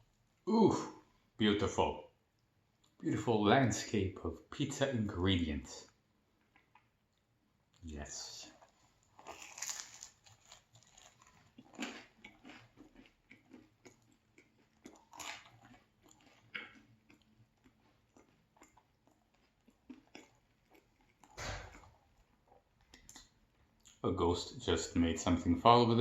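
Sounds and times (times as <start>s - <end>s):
chewing and biting pizza: 8.5s - 24.0s.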